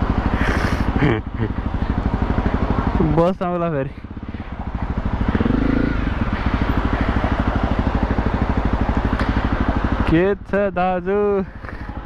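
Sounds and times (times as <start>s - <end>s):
dirt bike engine idling: 0.0s - 12.0s
engine rev: 0.0s - 12.0s.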